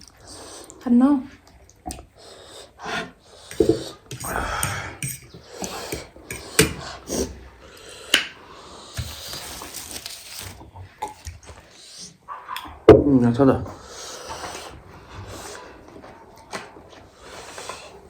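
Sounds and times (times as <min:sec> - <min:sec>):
people eating noodles: 0:00.0 - 0:12.8
breathing: 0:02.2 - 0:09.6
cutlery clinking against dishes: 0:03.6 - 0:06.8.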